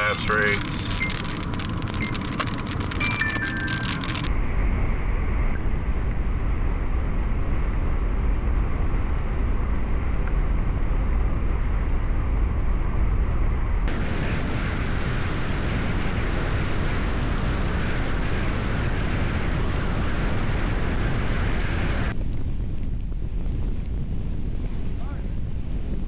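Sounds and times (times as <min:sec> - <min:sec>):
moving vehicle rumble: 0:00.0 - 0:04.3.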